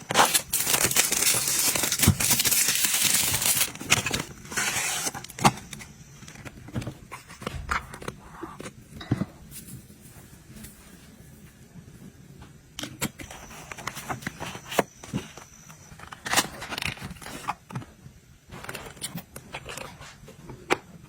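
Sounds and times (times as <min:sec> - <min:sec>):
items tapping and knocking: 0:06.7 - 0:09.5.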